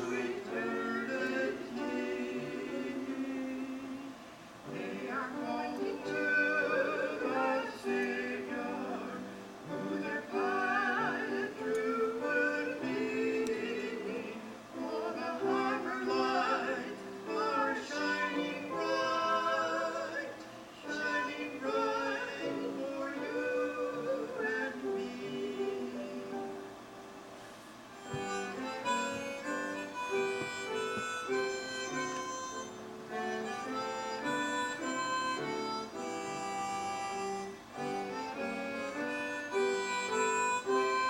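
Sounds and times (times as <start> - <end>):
voices singing a melody: 0.0 - 26.6, 28.0 - 41.0
instrumental accompaniment: 24.7 - 41.0.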